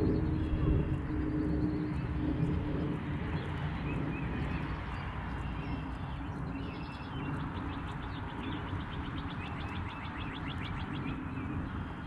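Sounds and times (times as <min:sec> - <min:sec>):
low steady rumble: 0:00.0 - 0:12.0
songbird calling: 0:03.4 - 0:12.0.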